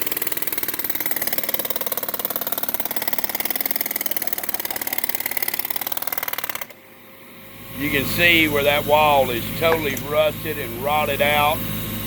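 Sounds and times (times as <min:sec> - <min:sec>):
jackhammer breaking concrete: 0:00.0 - 0:06.8.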